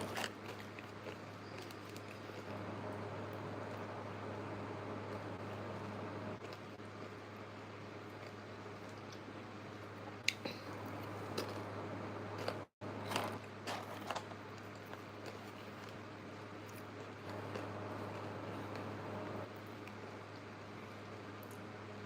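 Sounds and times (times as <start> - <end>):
chewing with crisp crunches: 0.0 - 3.9, 6.4 - 9.4, 12.3 - 13.4, 14.0 - 21.7
steady low hum: 0.0 - 22.0.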